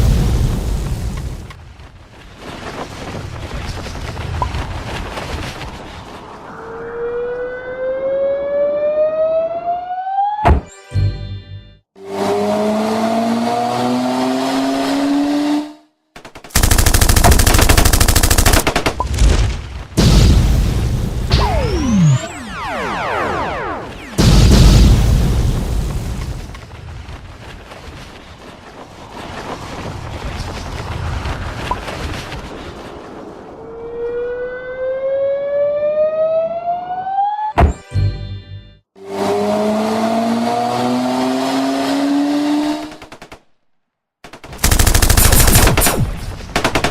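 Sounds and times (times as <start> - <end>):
rising engine-like whine: 6.2 - 10.4
rising siren-like tone: 6.2 - 10.7, 21.3 - 24.4, 33.5 - 37.8
loud crash: 19.2 - 26.5
cartoon rushing noise: 21.3 - 24.2.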